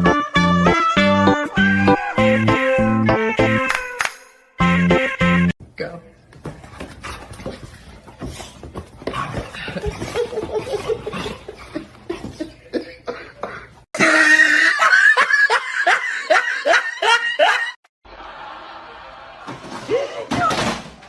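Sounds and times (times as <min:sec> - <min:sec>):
person laughing loudly: 0:09.8 - 0:17.8.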